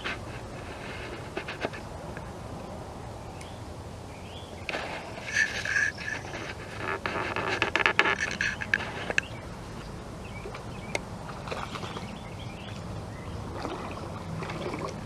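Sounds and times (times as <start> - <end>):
clicks and rustles: 0.0 - 2.3, 4.6 - 9.9
birds calling: 3.0 - 14.8
rapid chattering bird notes: 5.0 - 9.4.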